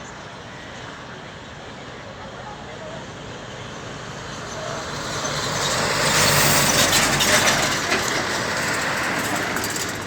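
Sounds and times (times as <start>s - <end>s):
jet passing by: 4.6s - 10.0s.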